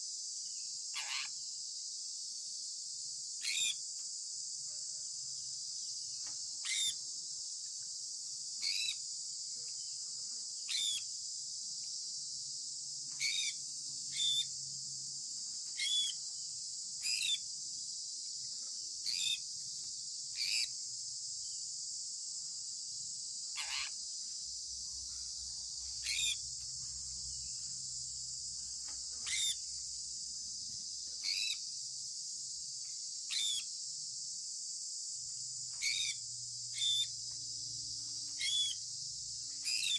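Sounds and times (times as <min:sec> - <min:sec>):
steady high-pitched hiss: 0:00.0 - 0:39.9
parrot chirping: 0:06.6 - 0:07.0, 0:08.6 - 0:09.0, 0:10.7 - 0:11.0, 0:13.2 - 0:14.5, 0:15.8 - 0:16.2, 0:17.0 - 0:17.4, 0:19.0 - 0:19.4, 0:20.4 - 0:20.7, 0:23.5 - 0:24.0, 0:26.0 - 0:26.4, 0:29.2 - 0:29.6, 0:31.2 - 0:31.6, 0:35.8 - 0:36.2, 0:36.8 - 0:37.1, 0:38.4 - 0:38.8, 0:39.6 - 0:39.9.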